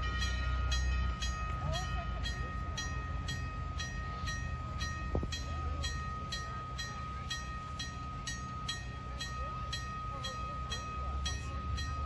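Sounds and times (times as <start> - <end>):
railway bell ringing: 0.0 - 12.0.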